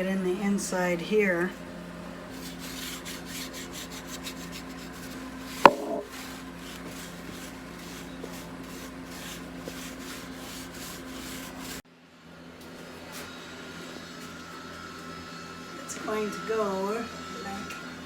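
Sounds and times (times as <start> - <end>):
scratchy rubbing on wooden frame: 2.3 - 11.8
sharp knock: 5.6 - 6.1.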